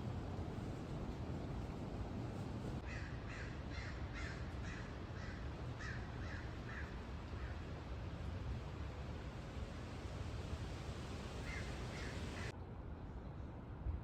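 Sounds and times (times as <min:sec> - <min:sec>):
bird giving harsh crow-like calls: 0:02.8 - 0:07.5, 0:11.4 - 0:12.5.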